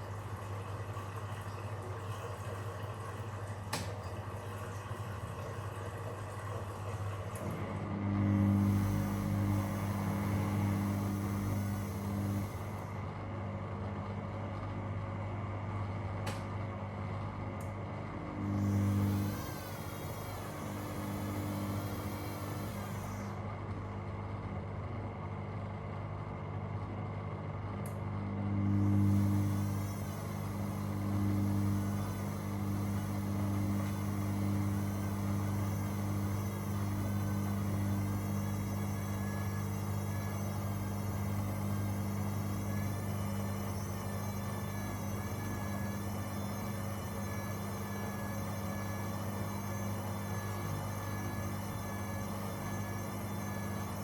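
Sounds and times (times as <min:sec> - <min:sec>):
low machine hum: 0:00.0 - 0:54.0.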